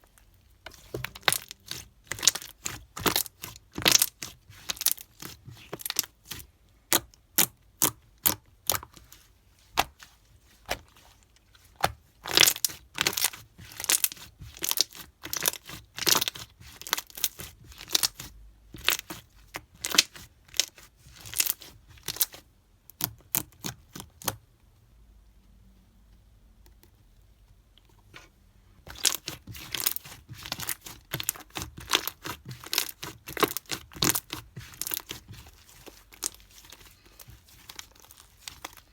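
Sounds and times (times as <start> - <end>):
slime popping and crackling: 0.9 - 9.0, 11.8 - 24.4, 28.9 - 38.9.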